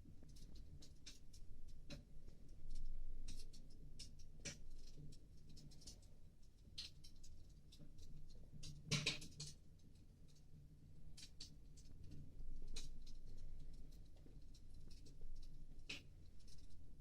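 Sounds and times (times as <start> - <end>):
low steady hum: 9.6 - 17.0.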